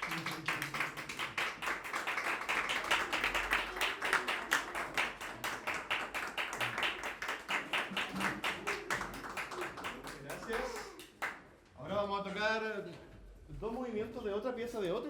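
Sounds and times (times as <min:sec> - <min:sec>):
audience clapping: 0:00.0 - 0:11.5.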